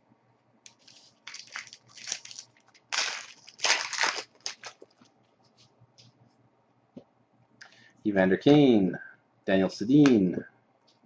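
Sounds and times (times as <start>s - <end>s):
foil wrapper crinkling: 0.7s - 5.1s.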